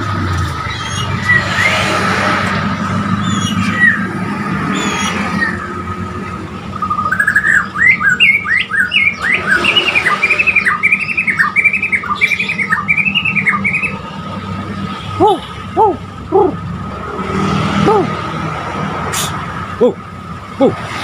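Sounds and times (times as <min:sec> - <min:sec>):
bird singing whistled notes: 0:06.7 - 0:14.0.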